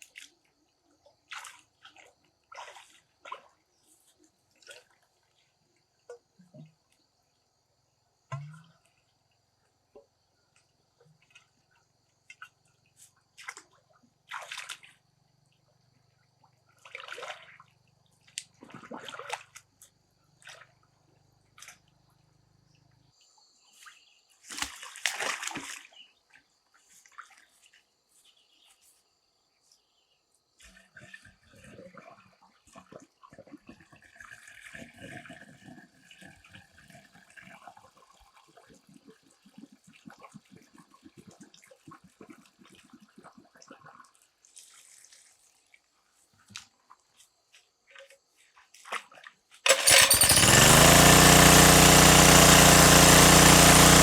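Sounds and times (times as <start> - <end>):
water splashing and sloshing: 1.1 - 6.3, 11.2 - 15.0, 16.7 - 21.9, 23.9 - 27.9, 30.6 - 37.6, 38.5 - 50.1.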